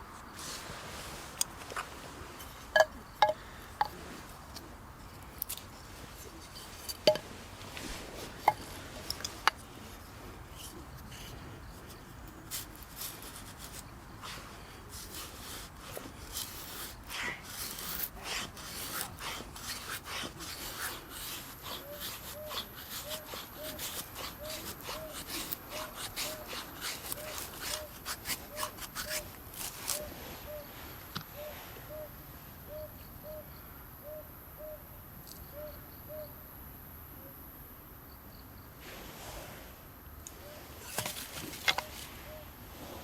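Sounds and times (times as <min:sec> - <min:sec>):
knife shaving wood: 0:05.2 - 0:30.2, 0:40.8 - 0:42.1.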